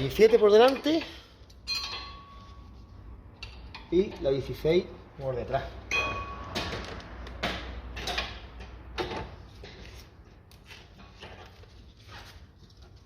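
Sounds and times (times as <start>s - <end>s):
short metal ring: 0.8s - 4.0s, 5.9s - 6.8s.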